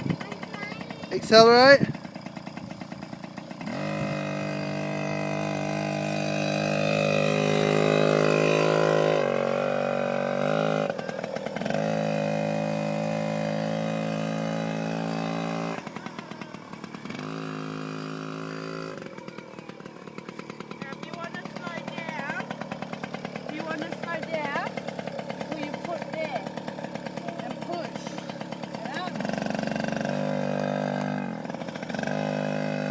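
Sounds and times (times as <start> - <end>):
two-stroke engine under throttle: 0.0 - 32.9.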